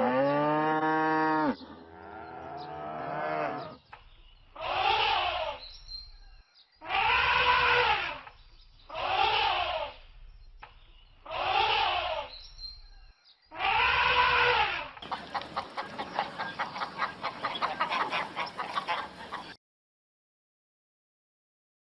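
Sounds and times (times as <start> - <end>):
animal calls rising and falling: 4.6 - 5.6, 6.8 - 10.1, 11.2 - 12.5, 13.5 - 16.8.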